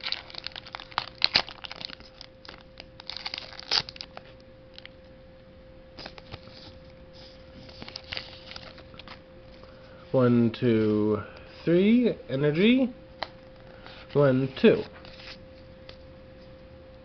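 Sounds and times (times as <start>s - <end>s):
foil wrapper crinkling and tearing: 0.0s - 5.0s, 7.6s - 9.2s.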